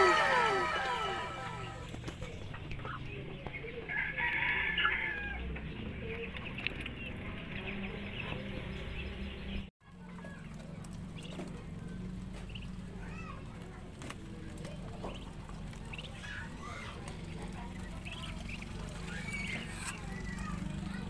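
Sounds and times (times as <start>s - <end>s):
rooster crowing: 0.0s - 1.9s, 3.9s - 5.4s.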